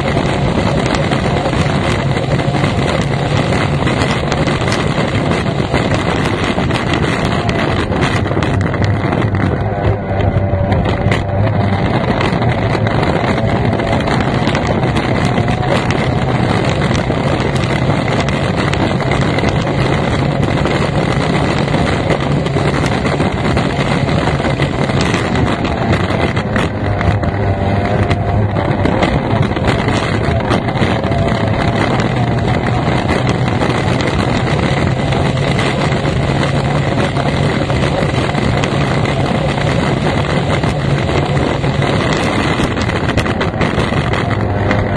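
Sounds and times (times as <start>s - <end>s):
race boat outboard engine: 0.0s - 44.9s
wind noise on microphone: 0.0s - 44.9s.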